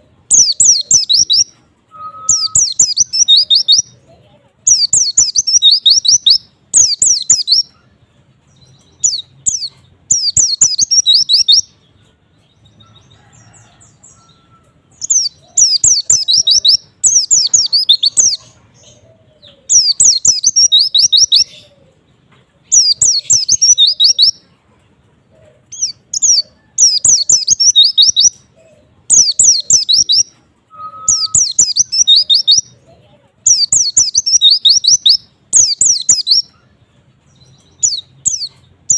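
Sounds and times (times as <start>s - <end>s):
bird twittering: 0.3s - 4.0s, 4.7s - 7.8s, 8.8s - 11.7s, 14.1s - 21.8s, 22.7s - 24.4s, 25.7s - 28.4s, 29.1s - 32.7s, 33.5s - 36.6s.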